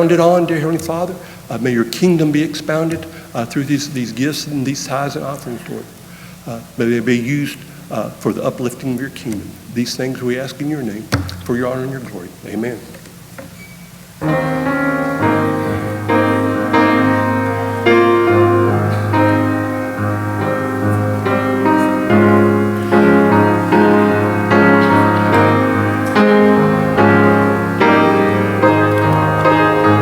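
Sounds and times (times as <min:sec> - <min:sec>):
slow piano chords: 0:14.2 - 0:30.0.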